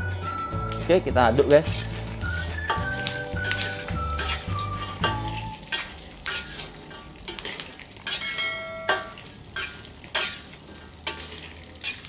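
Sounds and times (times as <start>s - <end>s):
background music: 0.0s - 5.7s
peanuts frying in hot oil: 0.0s - 12.0s
metal spatula scraping a pan: 1.4s - 12.0s.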